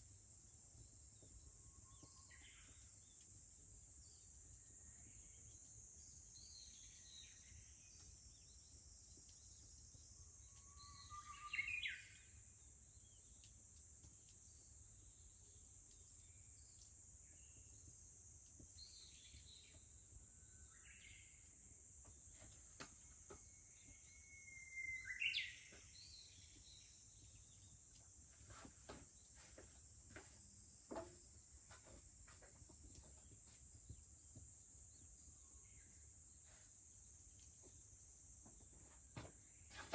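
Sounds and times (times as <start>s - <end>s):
cicadas droning: 0.0s - 39.9s
bush warbler singing: 23.9s - 27.7s.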